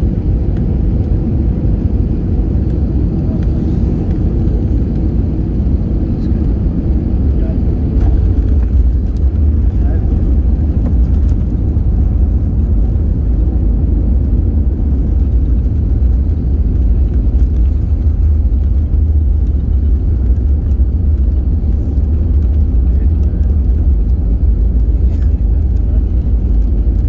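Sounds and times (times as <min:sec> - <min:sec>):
airplane cabin engine and airflow noise: 0:00.0 - 0:27.0.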